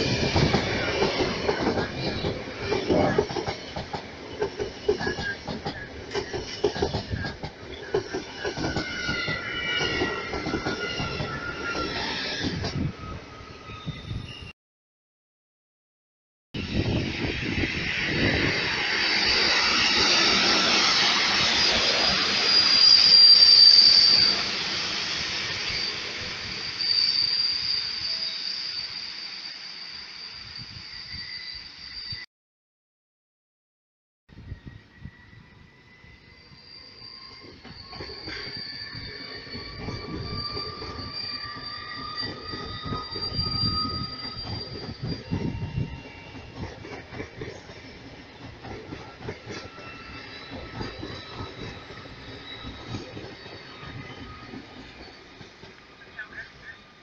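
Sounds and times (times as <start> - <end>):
train wheels on rails: 0.0 - 13.0, 16.6 - 28.2, 36.0 - 57.0
high wheel squeal: 0.0 - 14.5, 16.6 - 32.3, 34.5 - 57.0.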